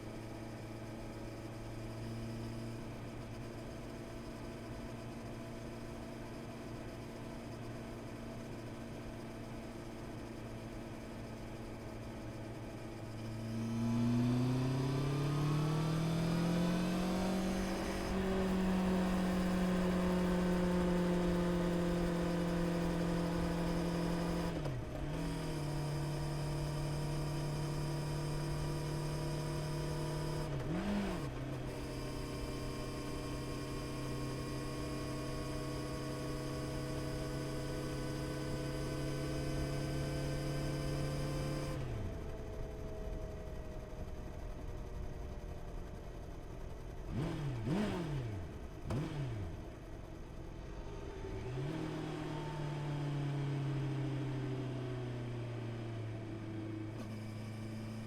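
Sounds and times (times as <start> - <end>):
motorcycle engine accelerating: 13.0 - 44.5, 45.2 - 58.0.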